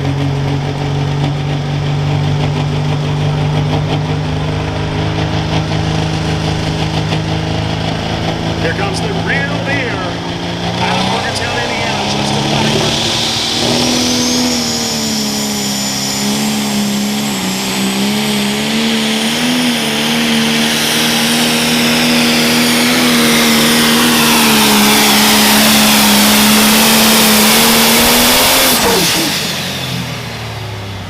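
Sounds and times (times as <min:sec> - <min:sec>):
diesel engine at high revs: 0:00.0 - 0:31.0
high turbo whistle: 0:10.2 - 0:18.2.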